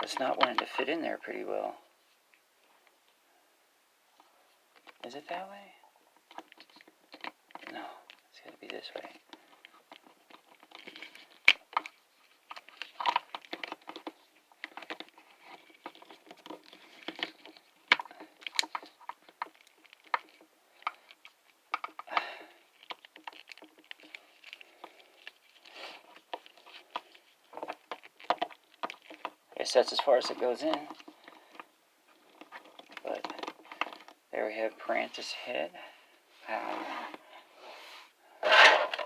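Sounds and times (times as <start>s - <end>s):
hard plastic clicking and scraping: 0.0s - 1.0s, 6.2s - 34.2s, 38.4s - 39.0s.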